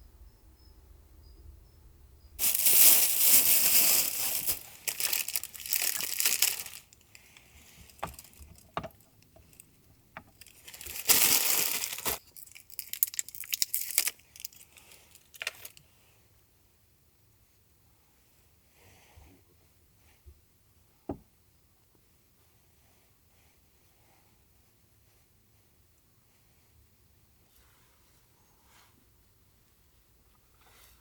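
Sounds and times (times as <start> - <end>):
crinkling and rustling: 2.4 - 15.8.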